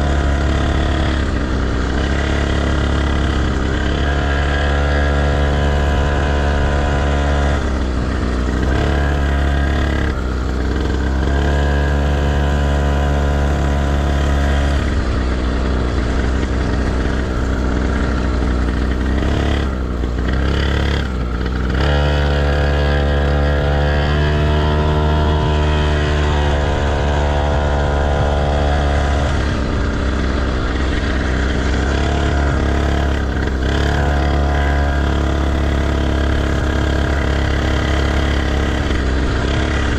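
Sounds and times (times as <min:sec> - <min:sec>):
deep rumble: 0:00.0 - 0:39.9
motocross bike engine revving: 0:00.0 - 0:39.9.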